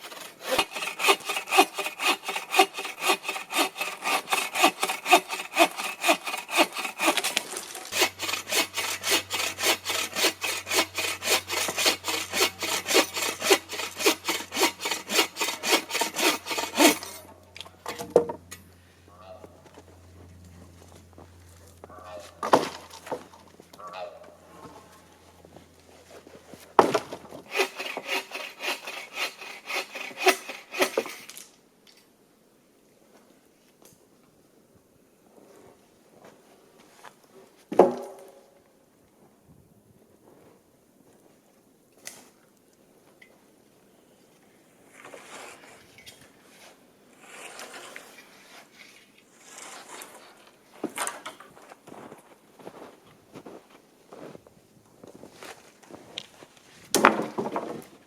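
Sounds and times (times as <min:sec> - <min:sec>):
hand saw cutting wood: 0:00.0 - 0:18.1, 0:26.8 - 0:31.4, 0:47.2 - 0:50.3
footsteps crunching in snow: 0:51.6 - 0:56.8.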